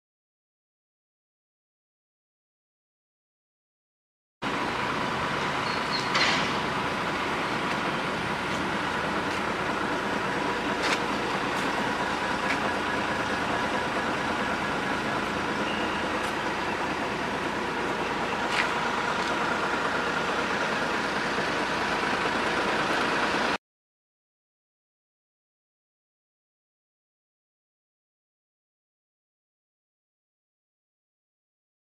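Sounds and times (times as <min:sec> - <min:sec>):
truck running: 0:04.4 - 0:23.6.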